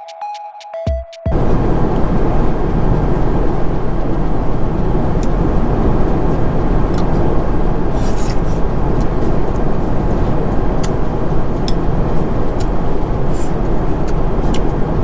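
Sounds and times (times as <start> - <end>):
music: 0.0 - 1.3
jet cabin engine roar: 1.3 - 15.0.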